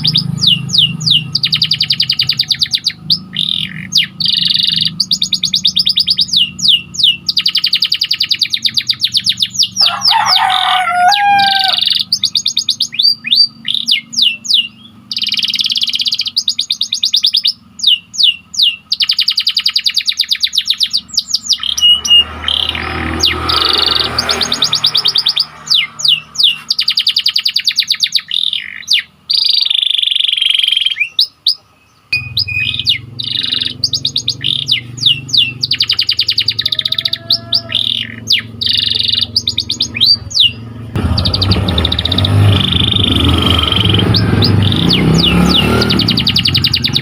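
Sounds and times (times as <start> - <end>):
canary singing trills: 0.0 - 47.0.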